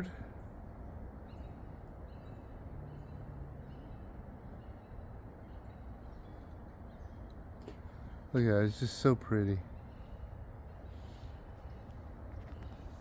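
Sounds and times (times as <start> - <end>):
highway traffic rumble: 0.0 - 13.0
faint bird chirps: 9.5 - 13.0.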